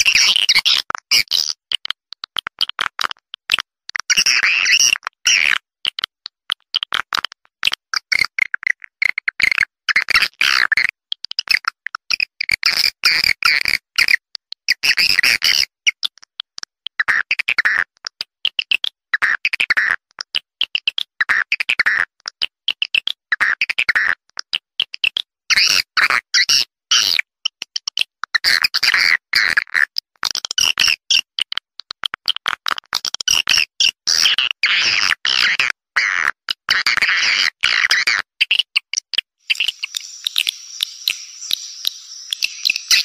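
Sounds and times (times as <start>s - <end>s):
swiftlet chirping twitters: 39.4s - 43.0s.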